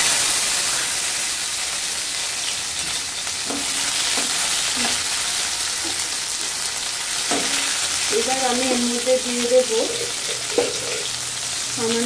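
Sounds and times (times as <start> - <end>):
tomatoes sizzling in hot oil: 0.0 - 12.0.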